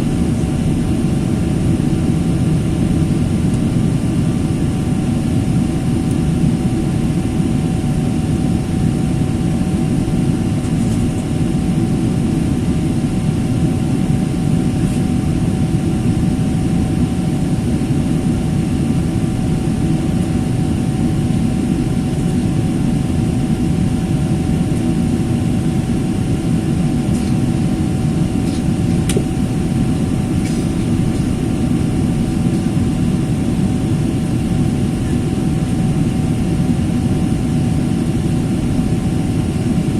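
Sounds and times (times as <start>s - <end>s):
jet engine and airflow drone: 0.0s - 39.9s
faint steady hum: 28.4s - 39.9s.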